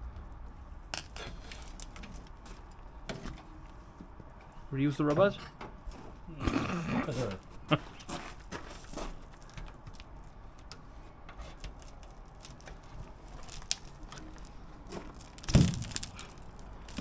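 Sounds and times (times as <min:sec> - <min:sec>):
loud thump: 0:00.0 - 0:00.9
light clicks and handling noise: 0:00.9 - 0:06.2, 0:08.0 - 0:17.0.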